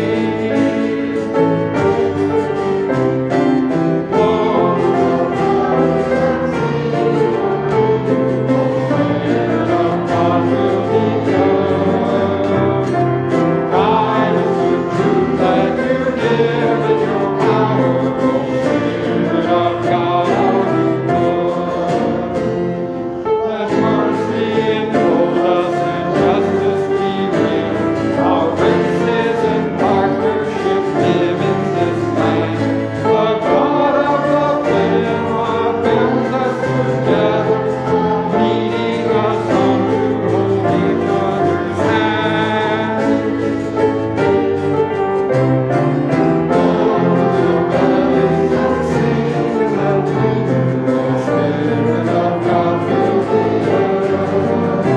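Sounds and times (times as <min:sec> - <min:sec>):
choir singing a hymn: 0:00.0 - 0:54.9
instrumental accompaniment: 0:00.0 - 0:54.9.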